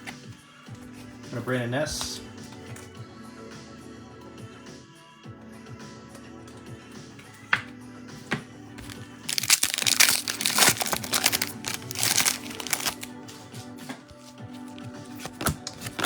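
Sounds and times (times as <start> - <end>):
background music: 0.0 - 16.0
wrapper tearing and crinkling: 8.8 - 13.1, 15.2 - 16.0.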